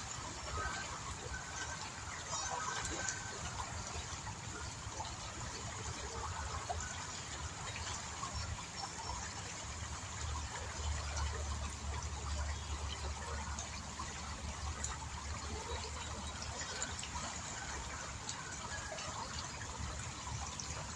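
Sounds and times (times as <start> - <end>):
river water trickling: 0.0 - 20.9.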